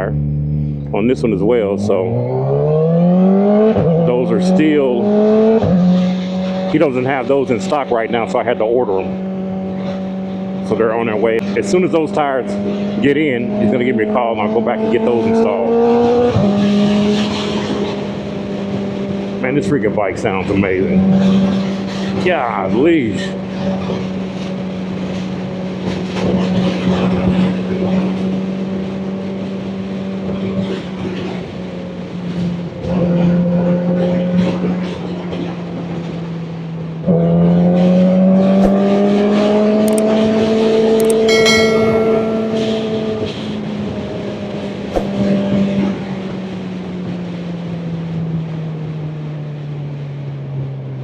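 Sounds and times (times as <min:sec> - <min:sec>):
sharp click: 0:39.9 - 0:40.1, 0:41.0 - 0:41.3.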